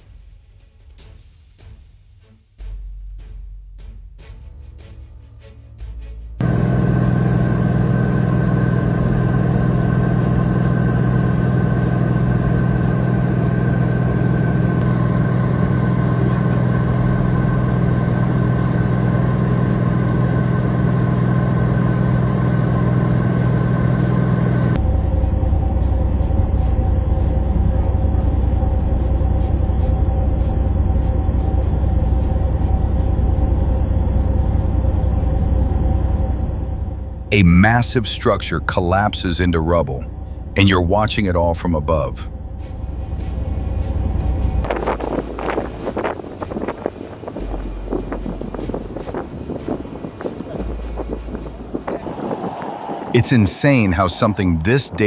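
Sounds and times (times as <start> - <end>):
vehicle engine and road rumble: 6.4 - 24.8, 41.9 - 55.0.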